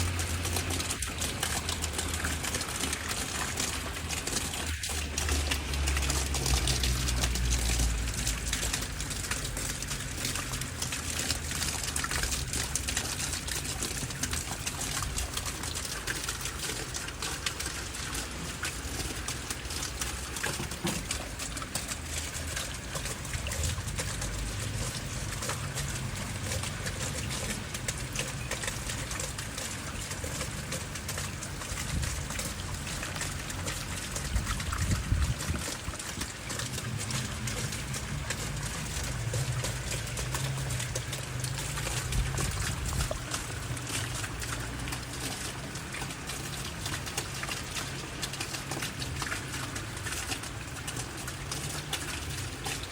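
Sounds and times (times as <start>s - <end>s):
heavy rain pouring: 0.0s - 52.9s
water trickling and running: 0.0s - 52.9s.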